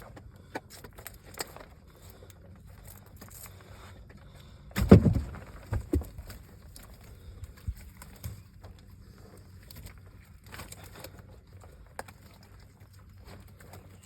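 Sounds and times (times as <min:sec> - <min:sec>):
small clicks and rustling: 0:00.0 - 0:04.4, 0:05.4 - 0:14.0
loud thump with rattle: 0:04.8 - 0:06.2.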